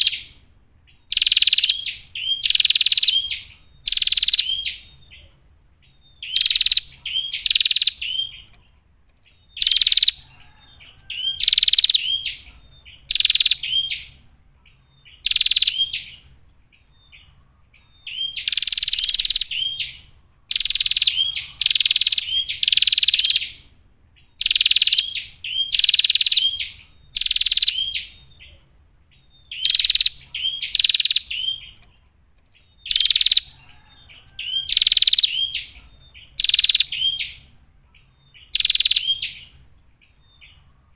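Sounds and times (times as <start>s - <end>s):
bird chattering calls: 0.0s - 5.3s, 5.9s - 8.7s, 9.3s - 28.6s, 29.2s - 32.0s, 32.6s - 40.7s.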